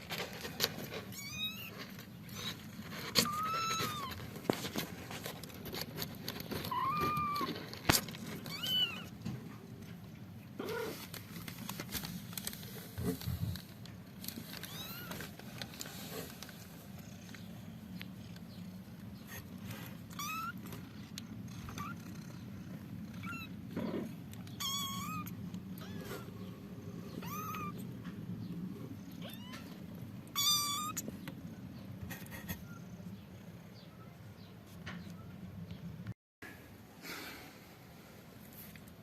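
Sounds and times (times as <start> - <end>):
kittens mewing: 6.6 - 7.8, 19.1 - 28.0, 28.6 - 31.4.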